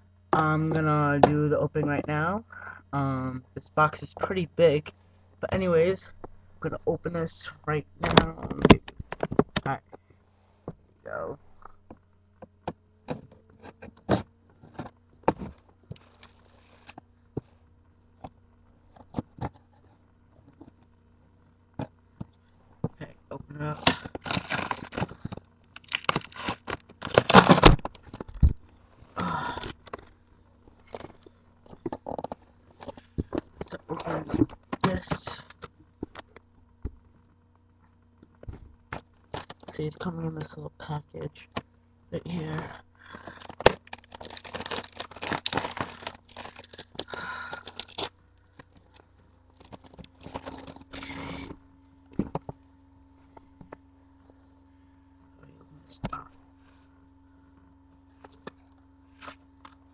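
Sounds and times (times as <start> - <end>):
wrapping crinkling and tearing: 15.4 - 17.0, 23.6 - 28.6, 43.2 - 51.3
cardboard box being torn open: 23.7 - 28.2, 43.4 - 48.1, 49.6 - 51.0.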